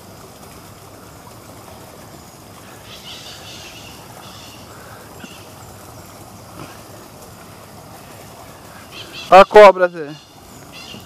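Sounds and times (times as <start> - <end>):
birds chirping harshly: 2.6 - 7.0, 8.5 - 11.0.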